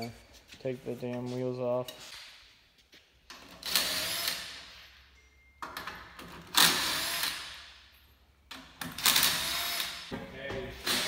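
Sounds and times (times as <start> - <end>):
impact wrench rattling: 5.6 - 11.0.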